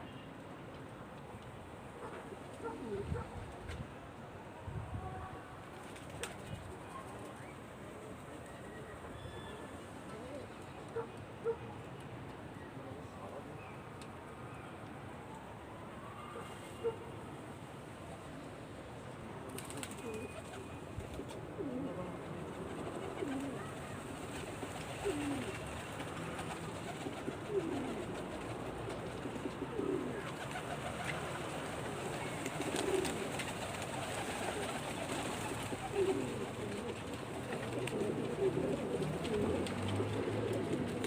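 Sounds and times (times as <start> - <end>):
pigeons cooing: 2.6 - 3.3, 21.5 - 41.0.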